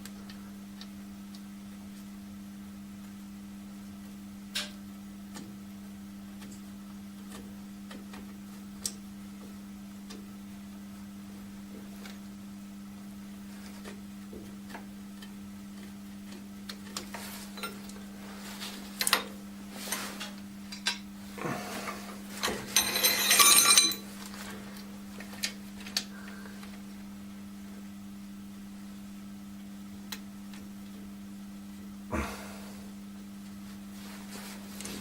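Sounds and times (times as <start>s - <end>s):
steady low hum: 0.0s - 35.0s
metal parts clicking and clinking: 22.4s - 24.1s
jangling metallic ringing: 22.8s - 24.1s.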